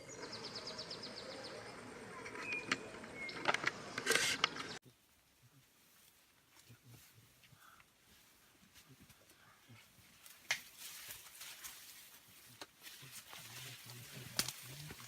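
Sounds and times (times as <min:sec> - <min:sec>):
whistled bird notes: 0:00.0 - 0:03.5
outdoor ambience: 0:00.0 - 0:15.0.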